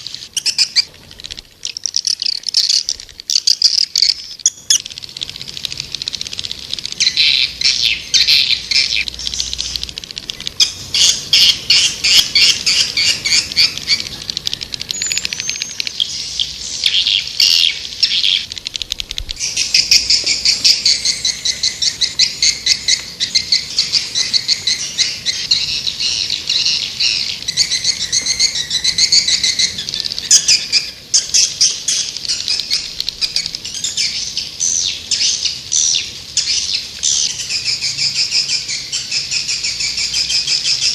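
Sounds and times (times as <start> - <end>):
swiftlets twittering: 0.0 - 33.6.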